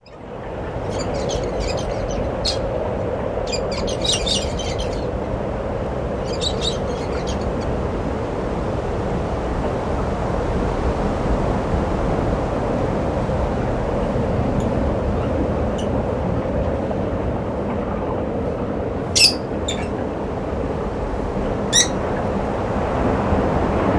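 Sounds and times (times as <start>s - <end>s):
small birds chirping: 0.0s - 7.9s, 19.2s - 20.0s, 21.7s - 22.2s
low rumbling background noise: 0.0s - 23.9s.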